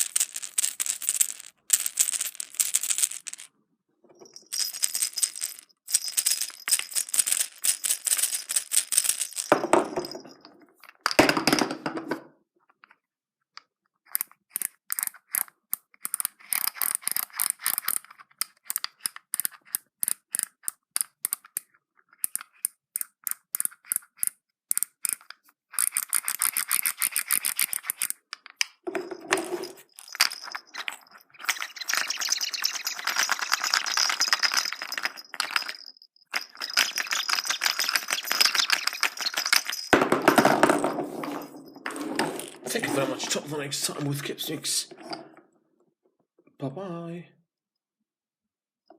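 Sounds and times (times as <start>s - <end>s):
plastic eggs clicking and rattling: 0.0s - 3.5s, 4.2s - 11.8s, 14.0s - 45.1s.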